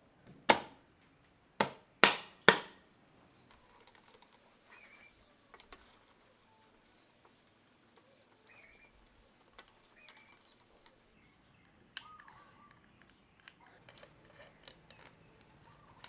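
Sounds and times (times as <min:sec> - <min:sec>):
light clicks: 0:03.5 - 0:06.1.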